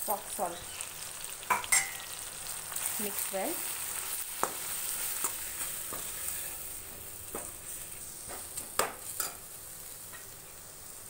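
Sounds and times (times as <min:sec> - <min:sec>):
food sizzling in a pan: 0:00.0 - 0:11.0
steel spoon scraping and tapping pan: 0:01.5 - 0:02.1, 0:08.3 - 0:09.4.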